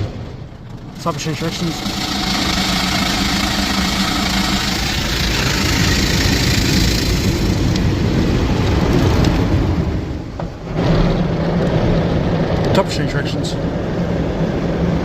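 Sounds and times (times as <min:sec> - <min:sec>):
car wash brushes spinning: 0:00.4 - 0:09.5
water spraying: 0:00.7 - 0:08.6.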